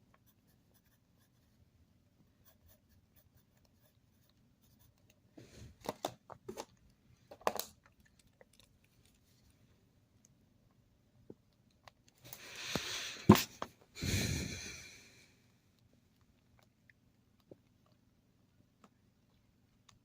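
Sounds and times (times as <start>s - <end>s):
faint scratching and handling: 0.0s - 9.9s.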